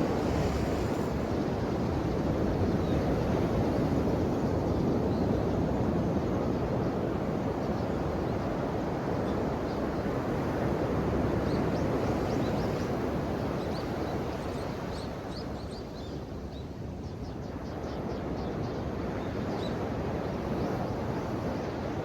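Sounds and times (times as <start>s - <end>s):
ocean waves washing on shore: 0.0s - 4.6s.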